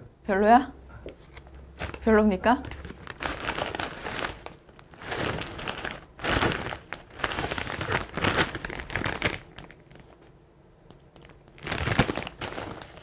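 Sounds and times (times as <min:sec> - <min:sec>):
plastic bag and cardboard box crinkling: 0:01.3 - 0:10.3, 0:11.2 - 0:13.0.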